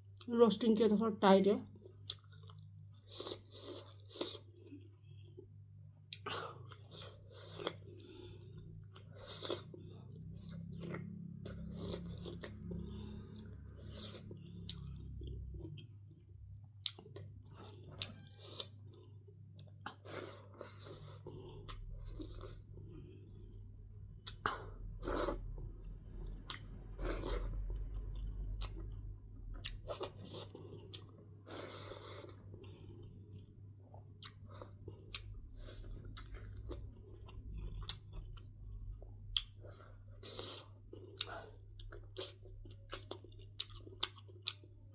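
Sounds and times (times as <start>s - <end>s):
chewing and biting food: 2.0s - 5.3s, 6.1s - 23.6s, 24.2s - 44.9s
food crunching: 2.0s - 5.3s, 24.2s - 44.9s.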